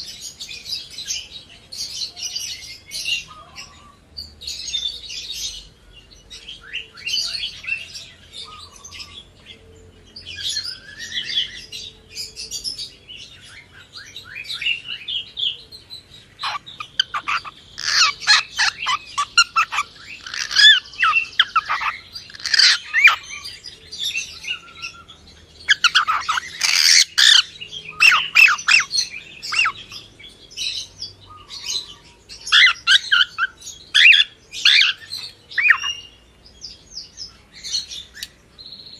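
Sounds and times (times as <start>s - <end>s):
cockatiel chirping and squawking: 16.4s - 23.4s, 25.7s - 29.8s, 32.5s - 36.0s.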